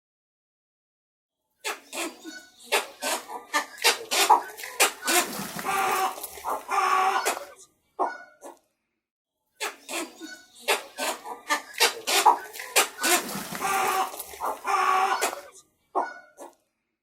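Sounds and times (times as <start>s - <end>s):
chicken squawking: 1.7s - 8.5s, 9.6s - 16.5s
chicken clucking: 9.7s - 16.5s.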